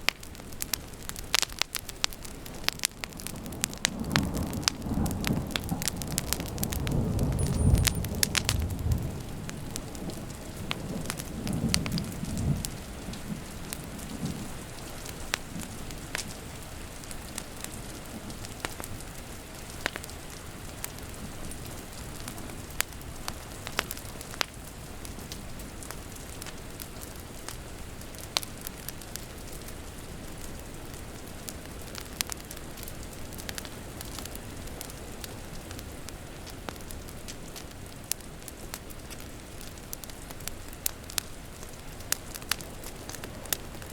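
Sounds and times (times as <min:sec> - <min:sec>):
steady rain: 0:00.0 - 0:43.9
wood fire crackling and popping: 0:00.0 - 0:43.9
low rumble of thunder: 0:03.4 - 0:14.6.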